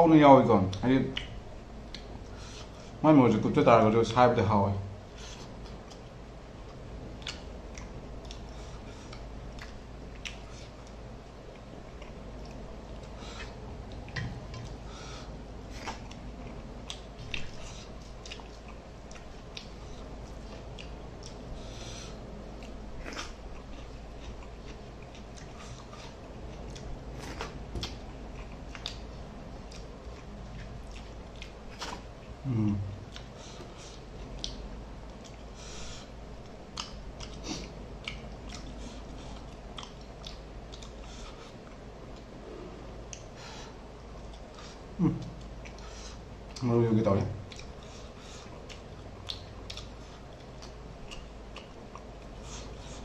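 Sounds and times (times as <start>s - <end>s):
man chewing with wet mouth sounds: 0.7s - 3.0s, 5.0s - 53.0s.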